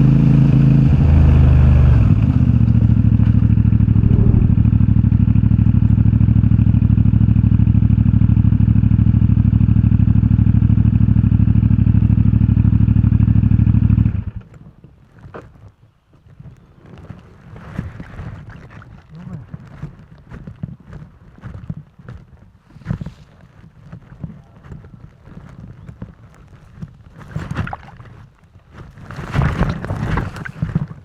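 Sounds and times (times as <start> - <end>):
rustling: 15.1 - 31.0.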